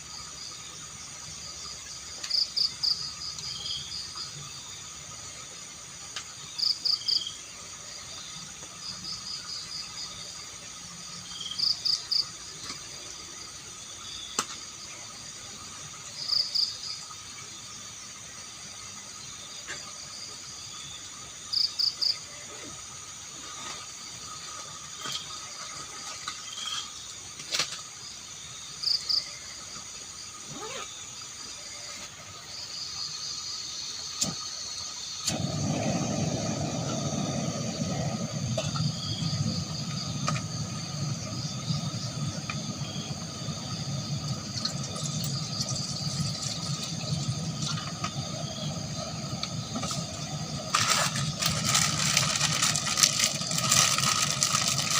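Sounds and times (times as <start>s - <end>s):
forest insects chorus: 0.0s - 54.9s
water-like rushing noise: 35.2s - 54.9s.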